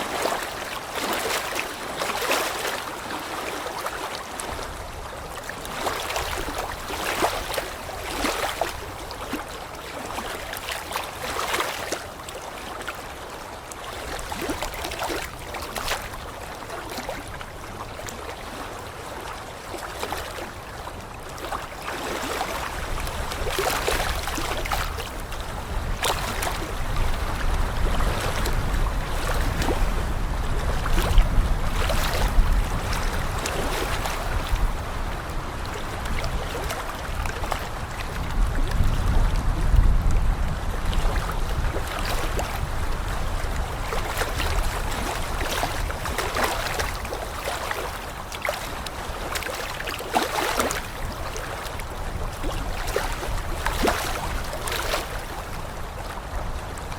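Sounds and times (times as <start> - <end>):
water sloshing: 0.0 - 39.6, 40.9 - 56.4
wind buffeting microphone: 22.5 - 47.4.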